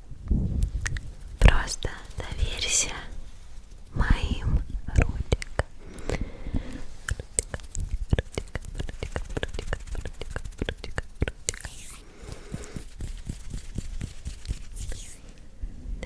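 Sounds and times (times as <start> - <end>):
breathy hiss: 1.4 - 13.0.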